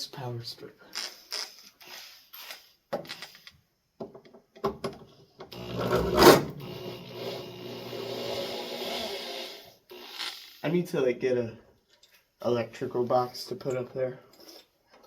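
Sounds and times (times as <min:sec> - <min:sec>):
power drill running: 0:05.5 - 0:10.5.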